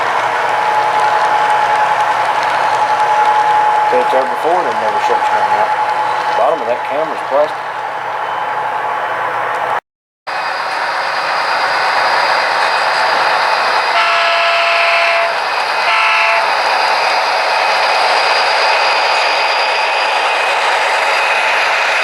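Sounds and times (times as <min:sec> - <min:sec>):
steady running noise: 0:00.0 - 0:09.8
model locomotive horn: 0:13.9 - 0:16.5.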